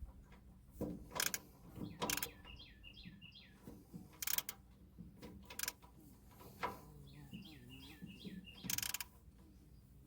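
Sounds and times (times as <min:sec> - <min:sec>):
metal clicks and knocks: 0:00.0 - 0:02.4, 0:04.0 - 0:06.8
bird chirping: 0:01.8 - 0:03.8, 0:06.9 - 0:09.1.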